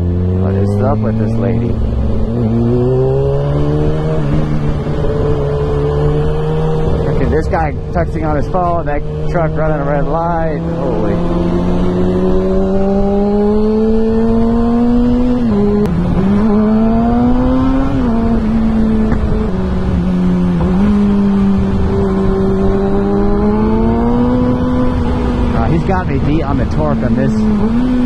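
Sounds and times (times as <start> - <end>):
low wind rush: 0.0 - 28.0
motorcycle engine accelerating: 0.0 - 28.0.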